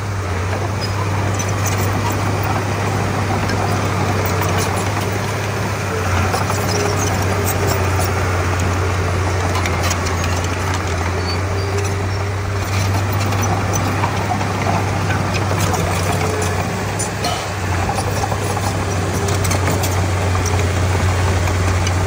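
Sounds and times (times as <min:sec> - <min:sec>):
bulldozer diesel engine running: 0:00.0 - 0:22.0
sharp clicks and clanks: 0:06.2 - 0:22.0.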